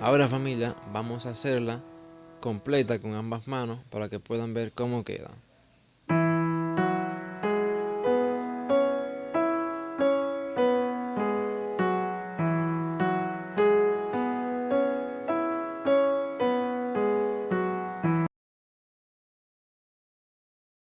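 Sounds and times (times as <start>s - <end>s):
piano playing scale: 0.0s - 3.7s, 6.1s - 18.3s.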